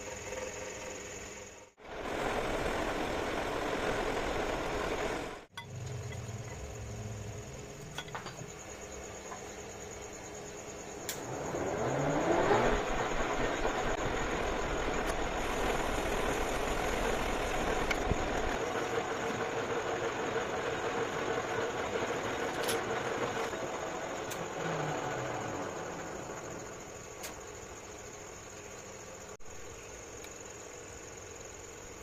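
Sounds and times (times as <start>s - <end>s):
lathe motor whine and hum: 0.0s - 5.5s, 11.1s - 27.1s.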